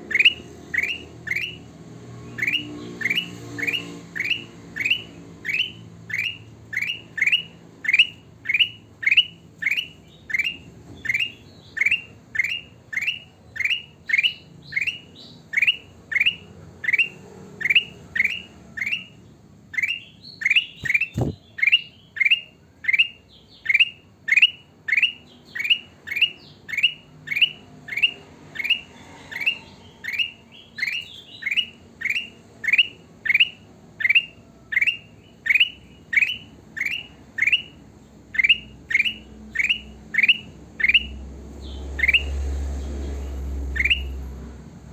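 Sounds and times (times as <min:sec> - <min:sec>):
bulbul calling rising note: 0:19.8 - 0:21.9.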